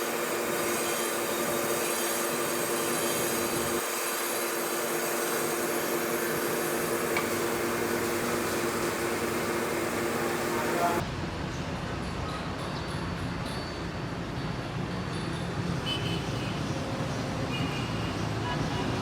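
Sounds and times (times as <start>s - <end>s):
machine whining: 0.0s - 11.0s.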